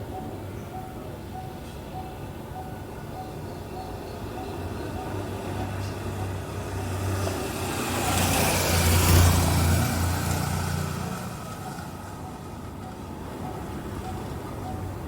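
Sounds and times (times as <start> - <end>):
vehicle passing by: 4.9 - 15.0.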